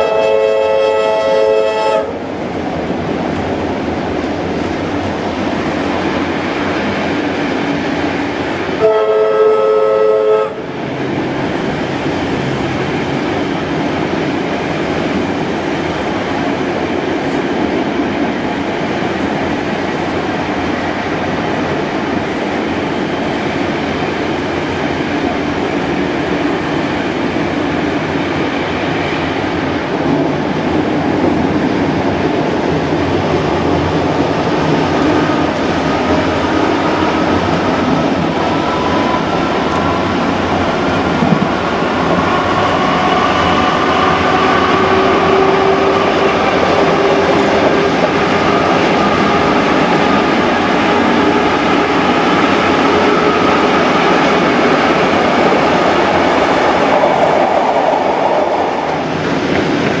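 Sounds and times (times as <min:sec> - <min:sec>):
train whistle chord: 0:00.0 - 0:02.2, 0:08.8 - 0:10.6, 0:42.6 - 0:46.3
train running noise: 0:00.0 - 1:00.0.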